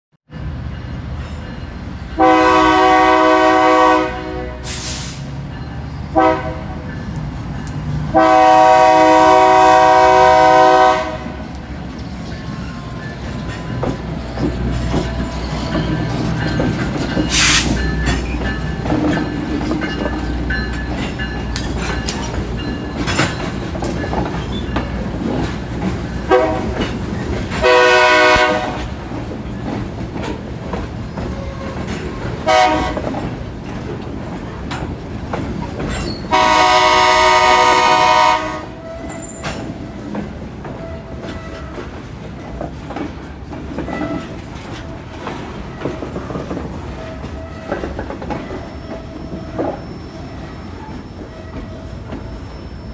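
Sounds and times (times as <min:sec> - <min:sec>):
train rumbling: 0:00.3 - 0:52.9
locomotive air horn blasts: 0:02.2 - 0:05.2, 0:06.1 - 0:06.8, 0:08.1 - 0:11.4, 0:26.3 - 0:26.9, 0:27.6 - 0:28.9, 0:31.4 - 0:33.1, 0:36.3 - 0:39.2
wheels clicking over rail joints: 0:10.8 - 0:36.7, 0:38.8 - 0:52.8.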